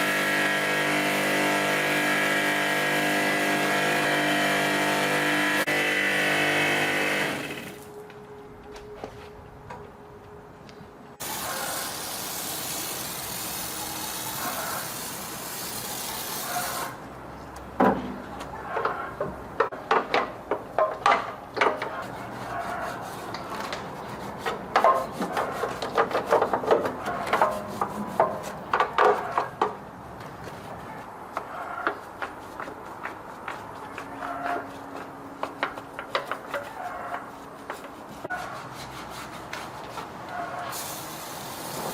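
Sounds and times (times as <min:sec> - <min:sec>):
steady hiss: 0:11.2 - 0:17.0, 0:40.7 - 0:41.9
hand tools knocking and scraping: 0:17.8 - 0:40.7.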